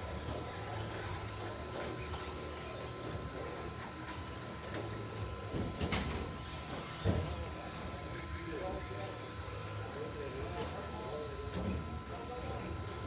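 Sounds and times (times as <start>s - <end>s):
rc trucks motor whirr: 0.0s - 7.6s.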